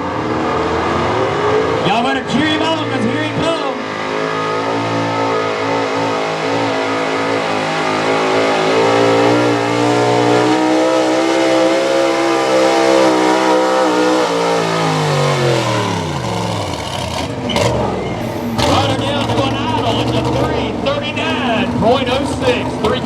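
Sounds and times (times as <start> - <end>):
truck engine revving hard: 0.0 - 23.0.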